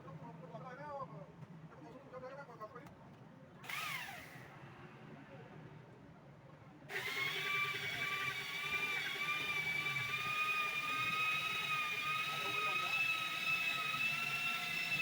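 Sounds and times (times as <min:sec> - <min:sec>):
machine motor whining: 0:03.6 - 0:04.5, 0:06.9 - 0:15.0.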